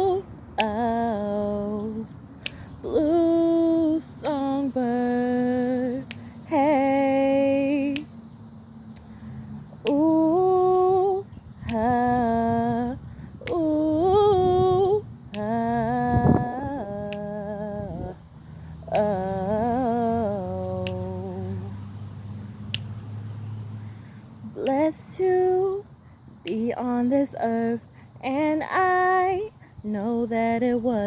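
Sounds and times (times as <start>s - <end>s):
light sharp clicks keeping time: 0.0s - 31.0s
woman humming a slow melody: 2.8s - 8.1s, 9.8s - 18.2s, 18.8s - 21.8s.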